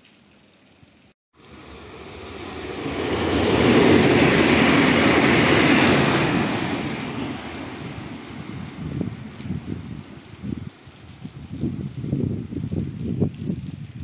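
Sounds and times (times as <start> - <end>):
train rushing past: 1.4 - 10.2.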